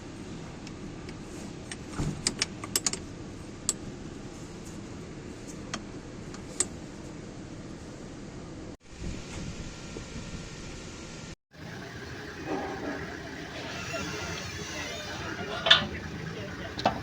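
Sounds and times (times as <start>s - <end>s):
steady low hum: 6.8s - 17.0s.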